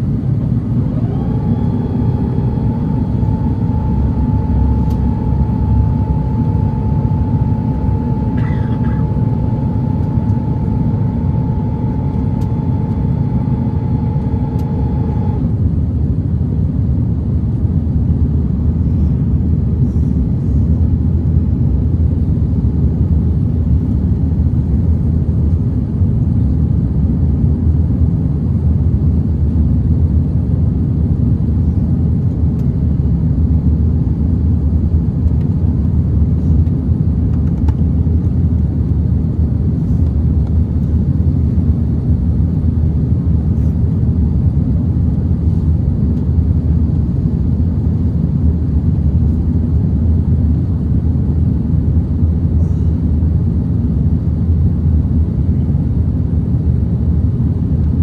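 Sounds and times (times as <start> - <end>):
mid-pitched whine: 0.0 - 15.6
aircraft cabin engine rumble: 0.0 - 58.0.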